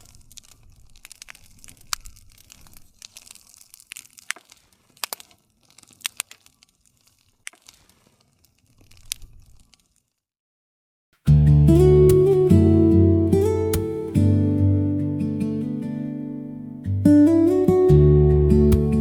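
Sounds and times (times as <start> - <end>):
low rumble of flames: 0.0 - 9.8
campfire crackling and popping: 0.0 - 10.3, 13.4 - 14.2.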